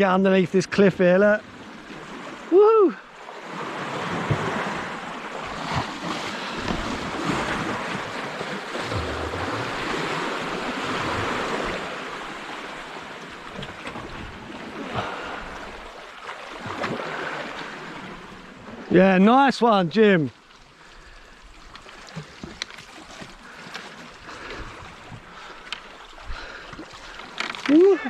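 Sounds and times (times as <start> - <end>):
surf washing over rocks: 2.0 - 21.4.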